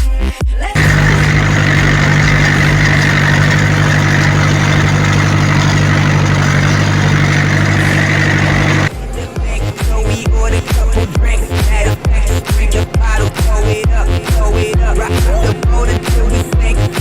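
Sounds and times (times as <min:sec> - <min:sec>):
tractor diesel engine running: 0:00.8 - 0:13.3.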